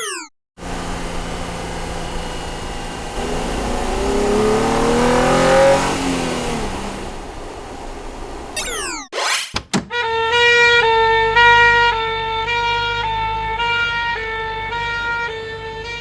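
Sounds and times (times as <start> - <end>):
cartoon car engine revving: 0.0 - 9.6.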